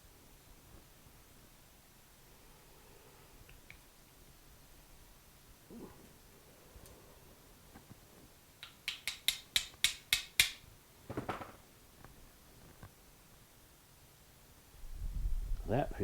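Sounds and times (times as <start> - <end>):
sharp metallic clicks: 8.6 - 10.7.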